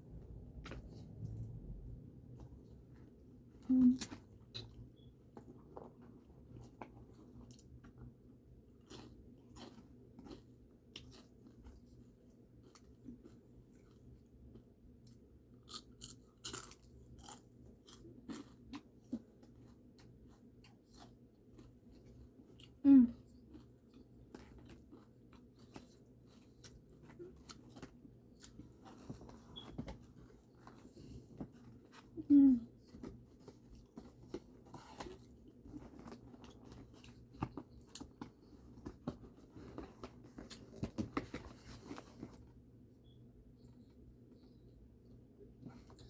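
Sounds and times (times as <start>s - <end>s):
person chewing crispy chicken: 8.7s - 28.6s.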